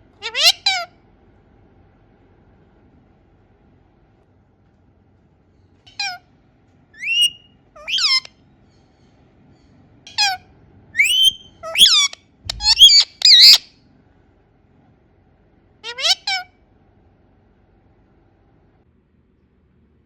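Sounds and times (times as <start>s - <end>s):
parakeet shrill calls: 0.2s - 0.9s, 5.9s - 6.2s, 7.0s - 8.3s, 10.1s - 10.4s, 11.0s - 13.7s, 15.8s - 16.5s.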